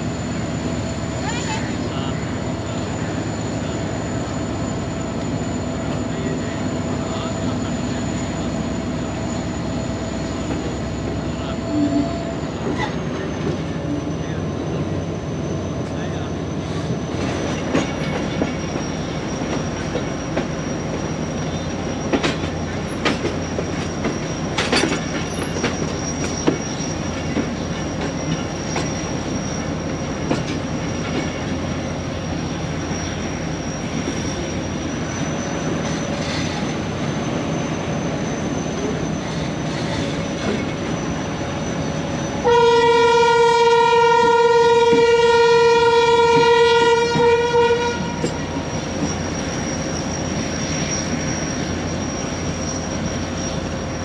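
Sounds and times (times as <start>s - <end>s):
thin high squeal: 17.9s - 42.4s, 48.2s - 54.0s
locomotive horn blast: 42.4s - 48.3s.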